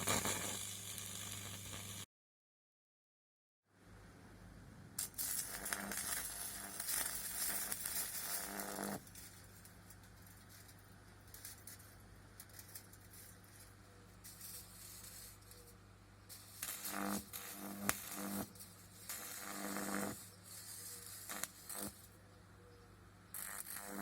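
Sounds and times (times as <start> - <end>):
high-voltage arc crackling: 0.0 - 2.1, 5.0 - 15.7, 16.3 - 22.1, 23.3 - 24.0.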